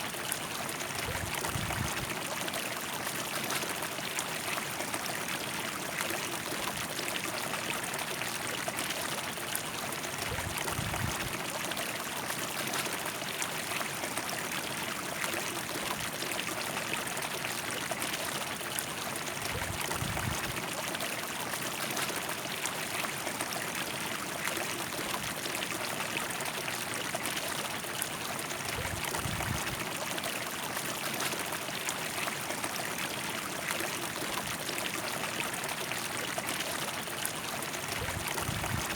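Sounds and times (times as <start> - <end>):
water rushing over rocks: 37.8 - 38.9.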